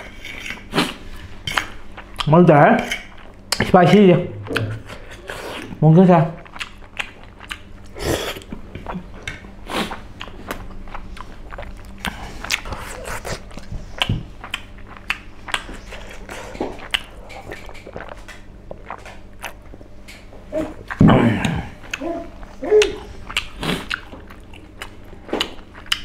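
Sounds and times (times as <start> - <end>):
person chewing sticky food: 0.0 - 26.0.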